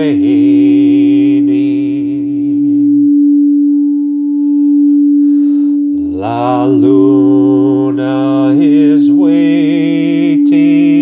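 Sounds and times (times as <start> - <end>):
low voice chanting with vibrato: 0.0 - 3.9, 5.9 - 11.0
steady pure drone tone: 0.0 - 11.0.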